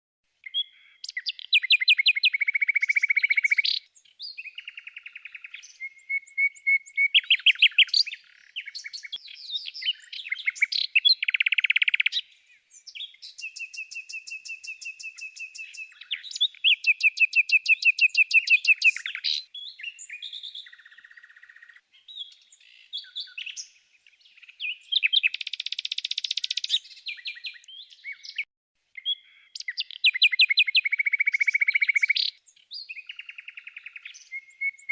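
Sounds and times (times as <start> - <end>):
birds singing and chirping: 0.4 - 34.9.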